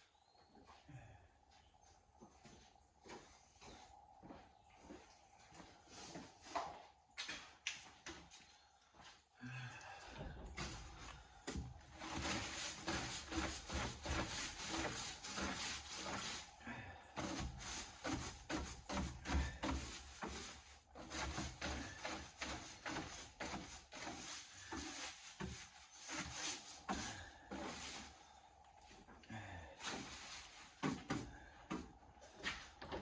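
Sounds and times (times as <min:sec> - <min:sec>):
broom bristles scraping floor: 0:10.6 - 0:16.6, 0:17.2 - 0:28.4, 0:29.8 - 0:33.0.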